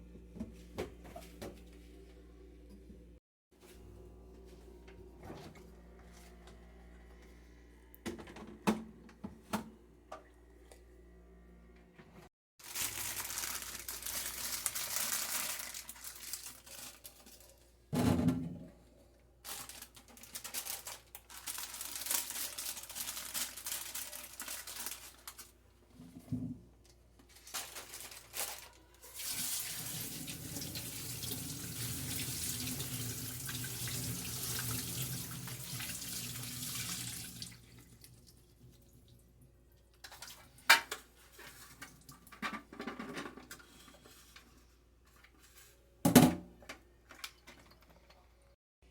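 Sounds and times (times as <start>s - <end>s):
tap water running into sink: 29.2s - 38.2s.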